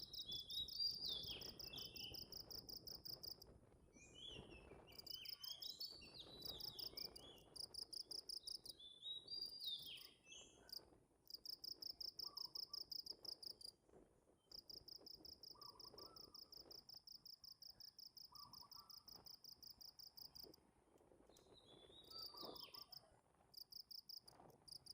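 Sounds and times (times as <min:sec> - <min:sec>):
insect chirping: 0:10.7 - 0:13.7.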